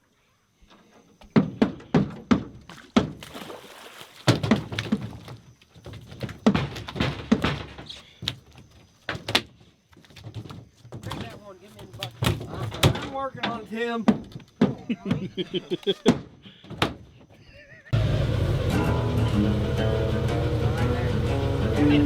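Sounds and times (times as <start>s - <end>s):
hollow thumps on a boat: 1.2s - 15.4s, 16.1s - 17.3s.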